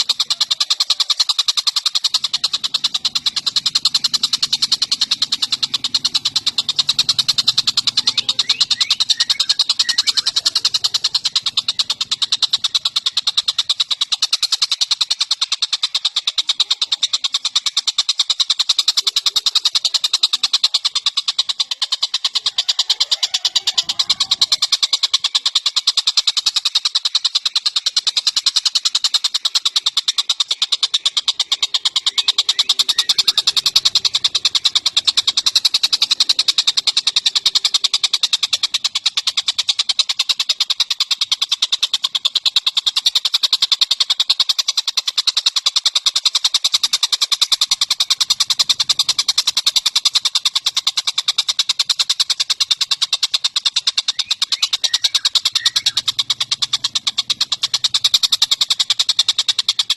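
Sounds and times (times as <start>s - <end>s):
songbird singing rapid high notes: 0.0s - 59.9s.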